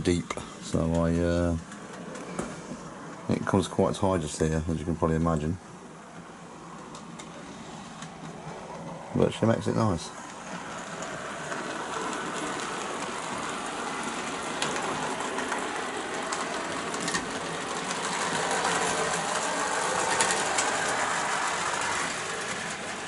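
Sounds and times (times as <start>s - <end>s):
model train motor whirr: 10.4s - 23.0s.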